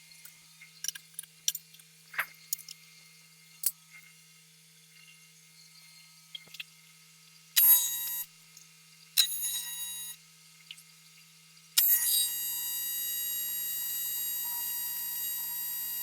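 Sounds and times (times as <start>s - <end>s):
welding arc buzzing: 9.2s - 10.2s, 11.8s - 16.0s.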